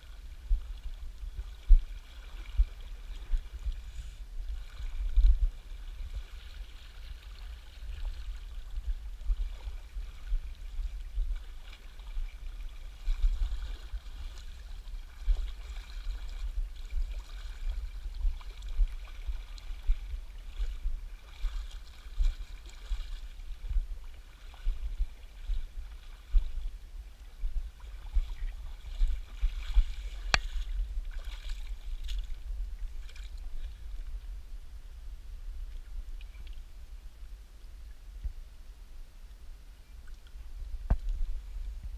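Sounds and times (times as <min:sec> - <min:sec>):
low rumble: 0:23.2 - 0:41.9.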